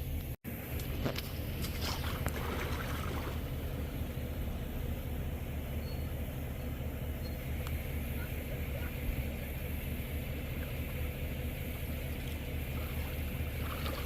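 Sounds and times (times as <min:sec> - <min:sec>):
vehicle rumble: 0:00.0 - 0:14.0.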